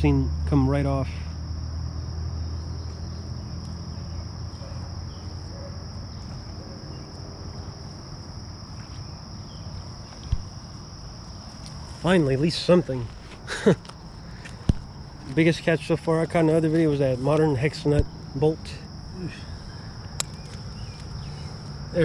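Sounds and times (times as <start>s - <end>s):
crickets trilling: 0.0s - 22.0s
low outdoor rumble: 0.0s - 22.0s
dull thump: 10.2s - 10.5s.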